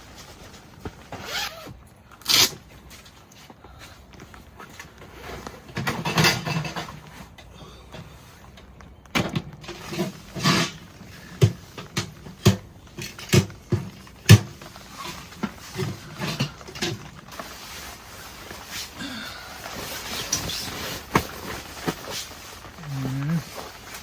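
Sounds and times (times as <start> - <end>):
short rustling: 13.6 - 24.0.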